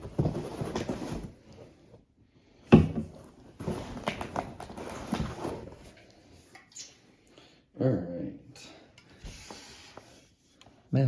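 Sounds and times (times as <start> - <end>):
cans rustling in cardboard box: 0.0 - 1.6, 2.8 - 6.0.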